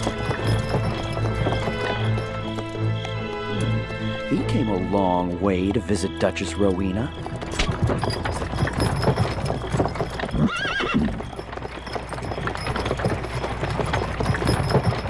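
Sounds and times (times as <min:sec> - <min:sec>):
horse hooves clip-clopping: 0:00.0 - 0:15.0
horse whinny: 0:07.4 - 0:11.4.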